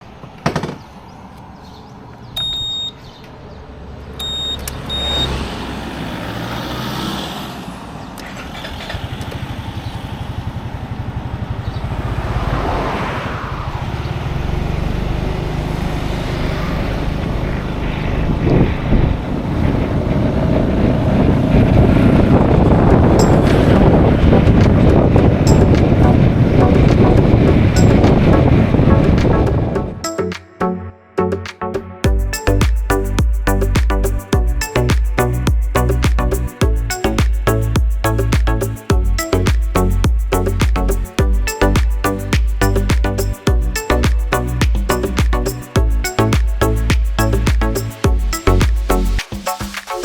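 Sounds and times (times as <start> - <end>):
vehicle engine rumble: 0.0 - 30.0, 32.1 - 49.8
road and wind noise: 0.0 - 50.0
short high electronic beeps: 2.4 - 3.0, 4.2 - 5.3, 41.0 - 50.0.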